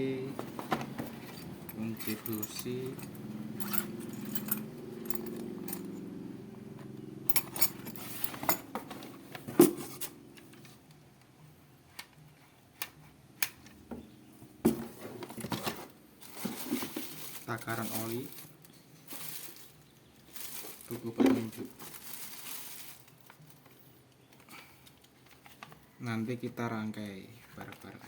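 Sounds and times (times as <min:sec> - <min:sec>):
metal clinks and rattles: 0:00.9 - 0:06.1, 0:07.2 - 0:10.2.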